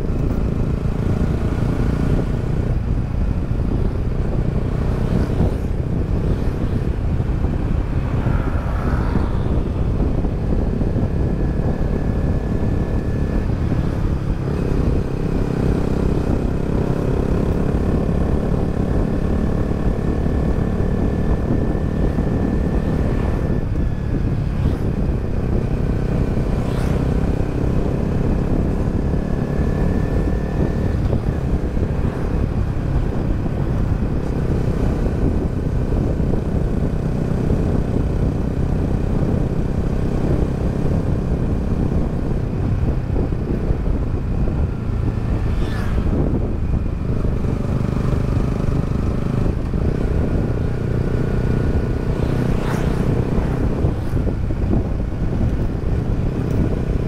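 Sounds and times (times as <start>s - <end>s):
motorcycle engine running: 0.0s - 8.1s, 9.2s - 57.0s
road and wind noise: 0.0s - 57.0s.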